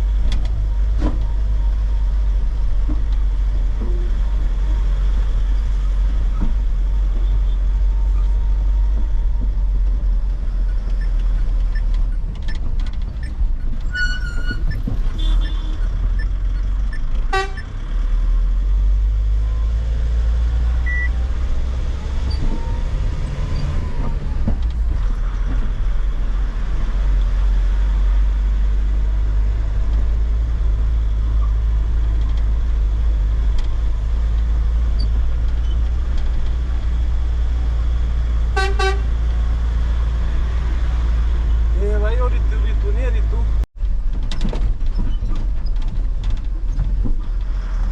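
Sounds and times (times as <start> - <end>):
truck engine and road rumble: 0.0 - 47.9
vehicle horn toots: 15.2 - 15.8, 17.3 - 17.7, 38.6 - 39.2.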